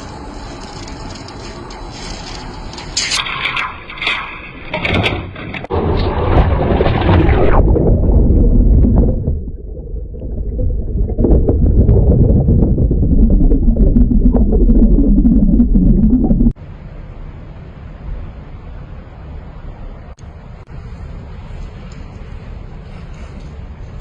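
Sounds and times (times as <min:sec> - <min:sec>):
vehicle engine deep rumble: 0:07.6 - 0:16.6.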